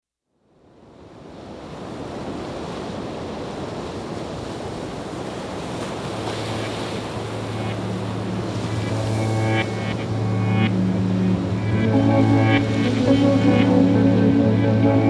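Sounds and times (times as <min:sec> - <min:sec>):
steady rushing noise: 0:06.5 - 0:15.0
low music drone: 0:06.6 - 0:15.0.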